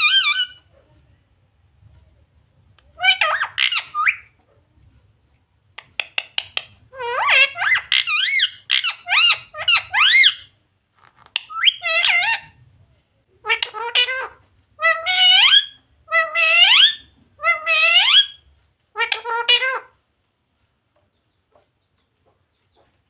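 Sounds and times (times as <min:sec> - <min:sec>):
parrot squawking: 0:00.0 - 0:00.8, 0:02.9 - 0:04.4, 0:06.0 - 0:10.5, 0:11.1 - 0:12.6, 0:13.4 - 0:20.0.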